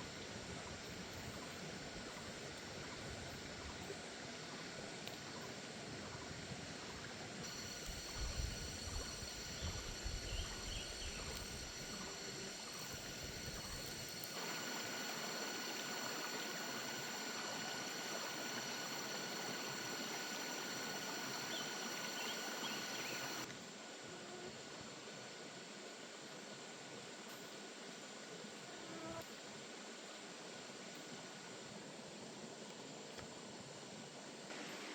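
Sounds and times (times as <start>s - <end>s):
running water rushing: 7.4s - 23.5s
faint chirps: 7.5s - 23.5s.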